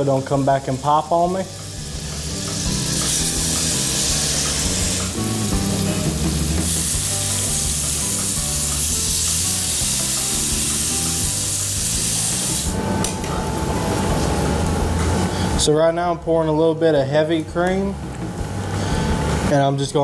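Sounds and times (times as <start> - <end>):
background music: 0.0 - 20.0
fish sizzling in a skillet: 0.5 - 12.8.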